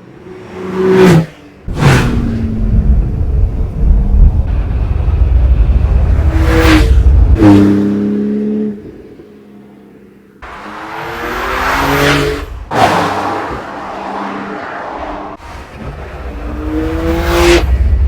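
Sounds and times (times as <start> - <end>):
car engine rumble: 1.6 - 7.5.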